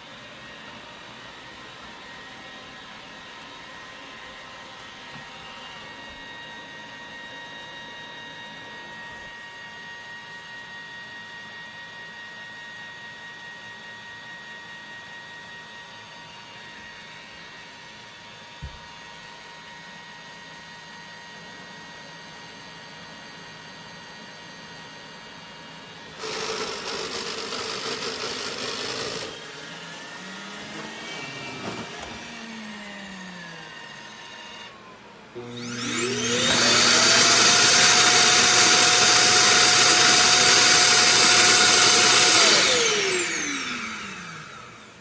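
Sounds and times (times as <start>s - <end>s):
robot vacuum running: 21.7s - 45.0s.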